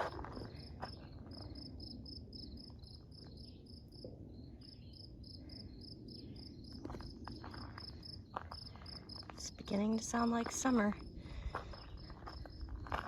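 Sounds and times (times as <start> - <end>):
insect chirping: 0.0 - 9.4.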